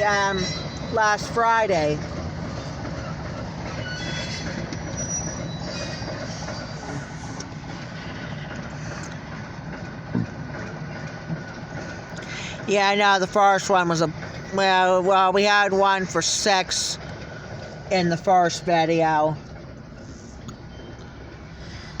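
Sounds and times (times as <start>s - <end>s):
high wheel squeal: 0.0s - 1.6s, 2.5s - 9.2s, 20.0s - 22.0s
train wheels rumbling on rails: 0.0s - 22.0s.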